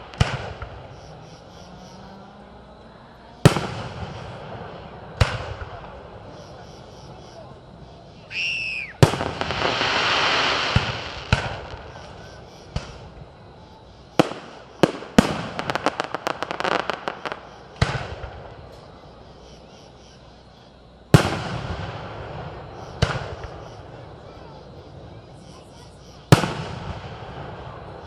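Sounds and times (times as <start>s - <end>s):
firework booms: 0.0s - 1.2s, 3.4s - 8.0s, 8.8s - 19.0s, 21.1s - 28.0s
firework crackling fizz: 8.3s - 13.2s, 14.1s - 18.8s
firework shells bursting: 9.0s - 13.2s, 14.2s - 18.8s.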